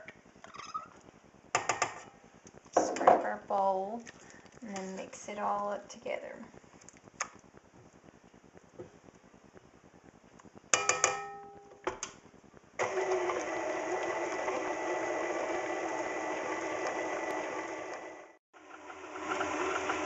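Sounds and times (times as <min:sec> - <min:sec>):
electric mixer running: 0:12.8 - 0:20.0.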